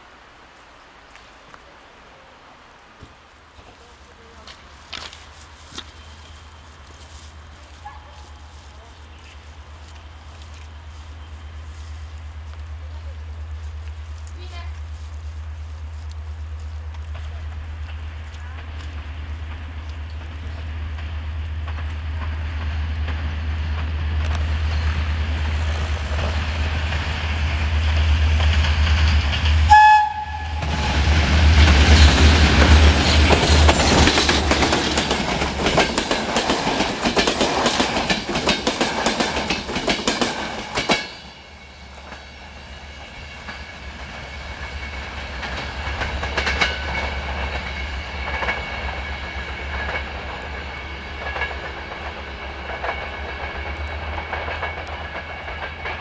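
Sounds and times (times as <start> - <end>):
locomotive engine drone: 6.0 - 36.1
train horn blast: 29.7 - 31.1
wheels clattering over rail joints: 30.8 - 56.0.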